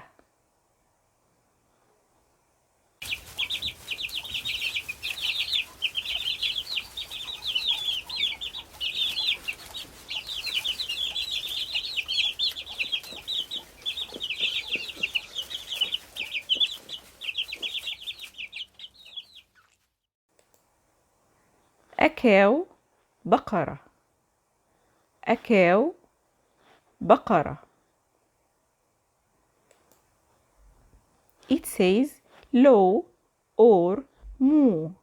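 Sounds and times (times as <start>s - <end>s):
chicks cheeping: 3.0s - 19.8s.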